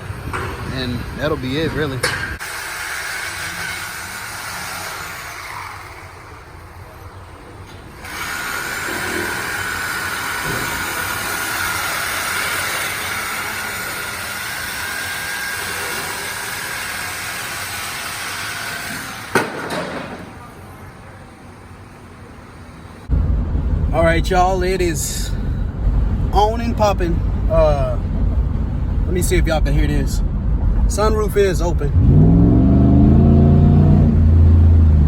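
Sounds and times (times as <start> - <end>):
power cutting tool whining: 2.4 - 6.7, 7.9 - 19.4.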